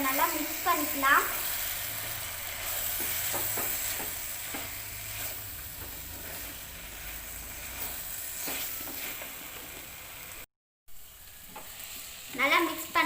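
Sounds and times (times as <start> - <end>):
masala sizzling in a pan: 0.0 - 13.0
spoon scraping pan: 7.5 - 10.0.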